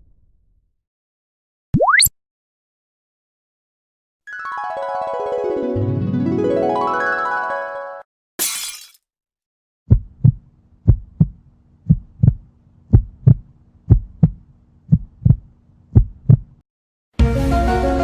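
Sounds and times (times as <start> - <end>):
heartbeat thumps: 9.9 - 16.6.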